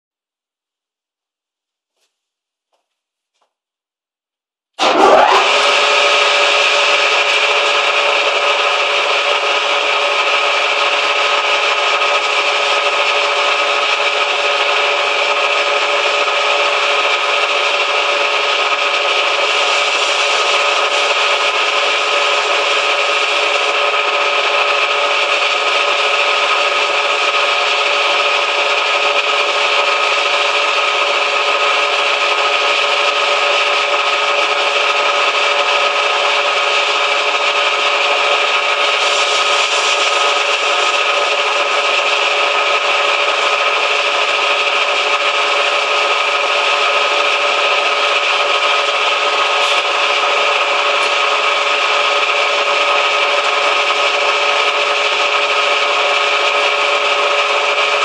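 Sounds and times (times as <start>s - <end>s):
lathe running: 4.8s - 58.0s.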